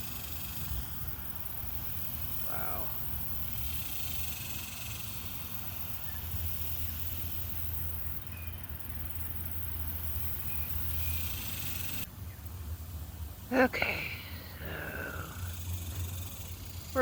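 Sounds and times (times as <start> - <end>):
cicadas droning: 0.0 - 17.0
road traffic rumble: 0.0 - 17.0.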